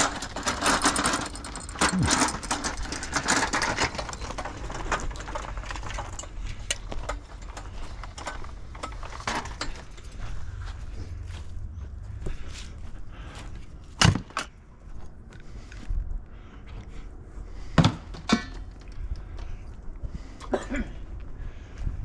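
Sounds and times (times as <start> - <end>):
scrap knocking and rattling: 0.0 - 11.0
steady low hum: 0.0 - 22.0.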